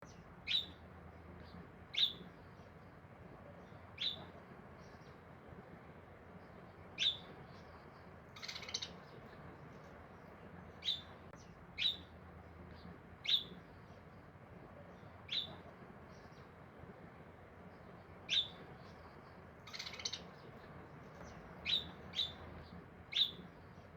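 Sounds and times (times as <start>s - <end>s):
bird chirping: 0.0s - 0.8s, 1.4s - 2.6s, 4.0s - 5.2s, 7.0s - 7.8s, 8.4s - 9.2s, 10.2s - 12.1s, 13.2s - 14.0s, 15.3s - 15.6s, 18.3s - 19.0s, 19.6s - 20.5s, 21.1s - 23.4s.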